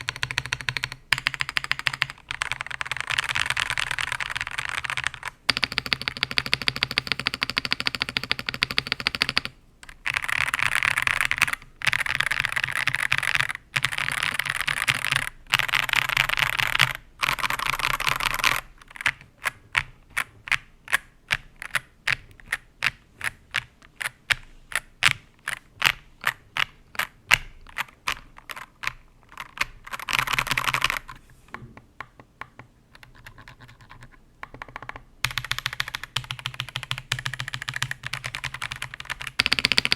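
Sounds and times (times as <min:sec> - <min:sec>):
mechanical keyboard typing: 0:00.0 - 0:31.2, 0:32.0 - 0:39.9.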